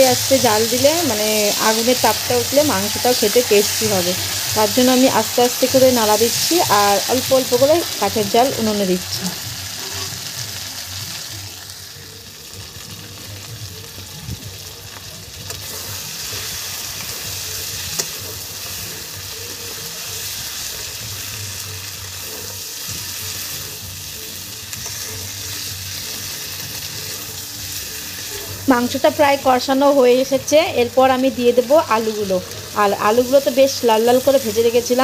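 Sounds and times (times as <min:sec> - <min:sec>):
chicken sizzling in a pan: 0:00.0 - 0:35.0
metal spatula scraping a pan: 0:09.7 - 0:10.3.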